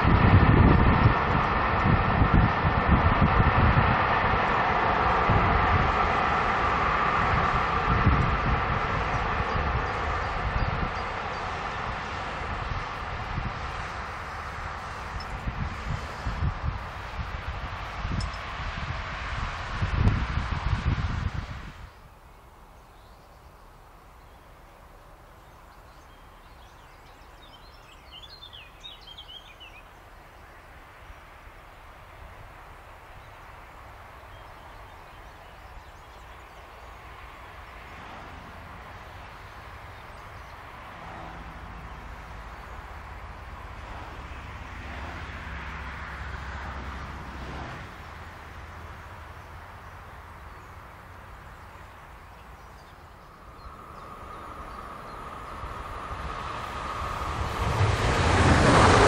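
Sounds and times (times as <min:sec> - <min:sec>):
distant train rumbling: 0:00.0 - 0:59.0
bird singing: 0:21.9 - 0:31.9, 0:33.1 - 0:38.0, 0:39.0 - 0:40.7, 0:49.0 - 0:57.3.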